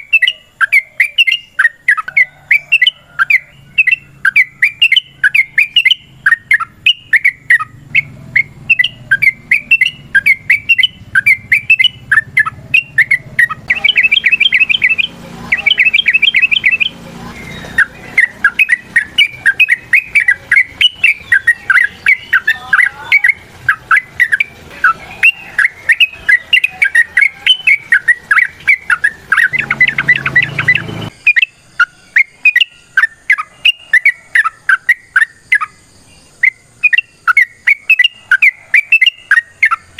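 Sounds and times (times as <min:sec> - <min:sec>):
bird chattering song: 0:00.0 - 0:39.9
low hum: 0:27.2 - 0:31.3.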